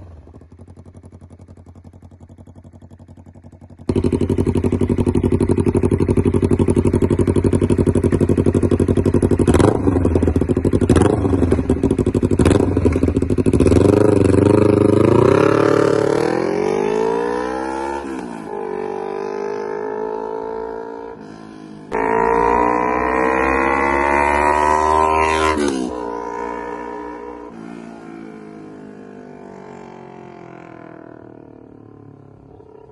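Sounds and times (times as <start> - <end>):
motorcycle engine revving: 0.0 - 32.9.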